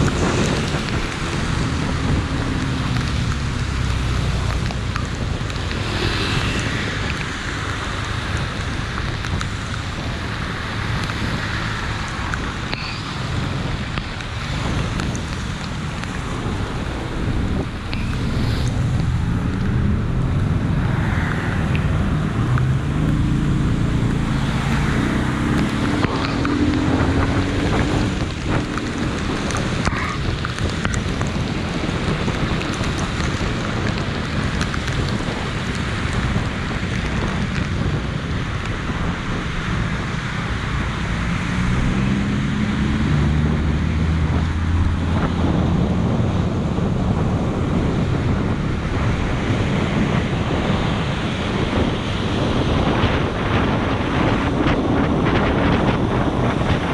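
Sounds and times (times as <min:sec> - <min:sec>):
low engine hum: 0:00.0 - 0:56.9
heavy rain hissing: 0:05.2 - 0:09.8.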